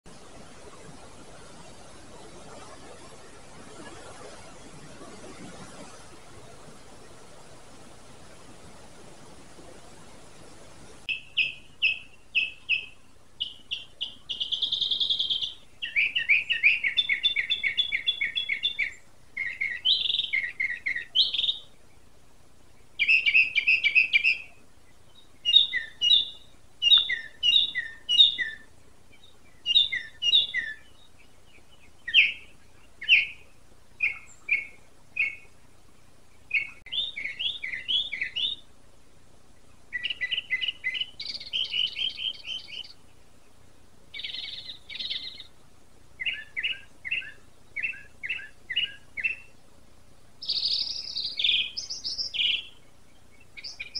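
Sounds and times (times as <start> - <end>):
songbird singing: 11.1 - 53.9.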